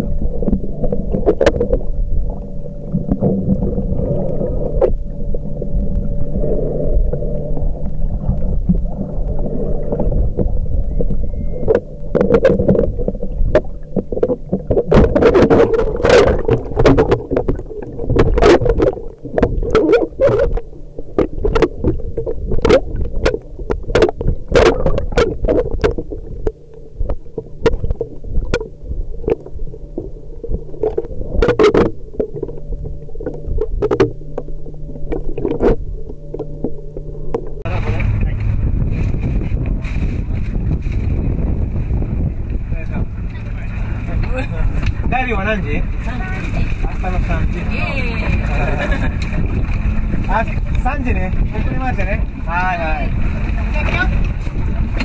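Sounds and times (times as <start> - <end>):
muffled underwater hum: 0.0 - 55.0
water sloshing: 0.0 - 55.0
sharp clicks and pops: 10.3 - 37.7.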